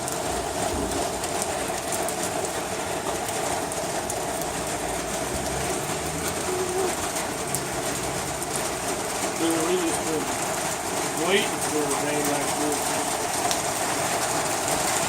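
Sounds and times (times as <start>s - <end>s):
heavy rain falling: 0.0s - 15.0s
raindrops ticking close by: 0.0s - 15.0s.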